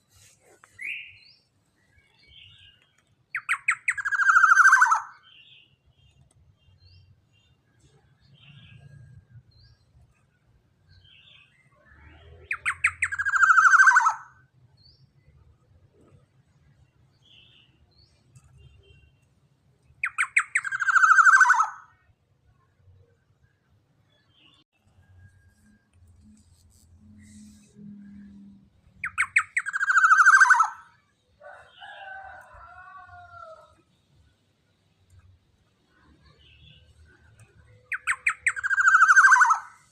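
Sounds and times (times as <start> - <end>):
bird calling: 3.4 - 5.2, 20.0 - 21.8, 29.0 - 30.9, 37.9 - 39.9
harsh rasping bird call: 37.9 - 39.9.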